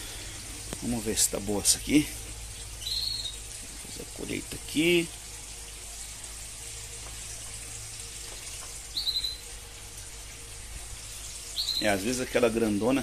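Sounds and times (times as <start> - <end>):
faint hiss and hum: 0.0 - 13.0
bird chirp: 2.6 - 3.5, 8.9 - 9.6, 11.2 - 12.2.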